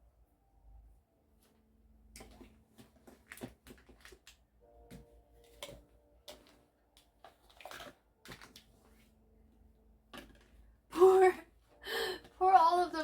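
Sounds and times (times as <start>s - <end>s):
small objects clicking and rustling: 2.2s - 4.4s.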